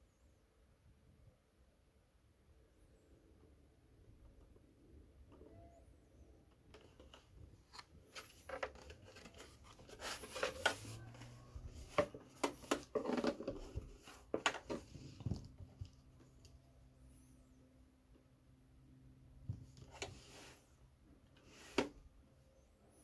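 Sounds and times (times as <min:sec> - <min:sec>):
rustling of handled objects: 0:06.6 - 0:16.5.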